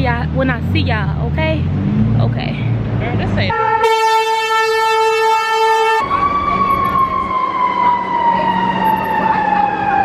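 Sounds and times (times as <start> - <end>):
fire engine air horn: 3.5 - 6.7
siren wailing: 3.5 - 10.0.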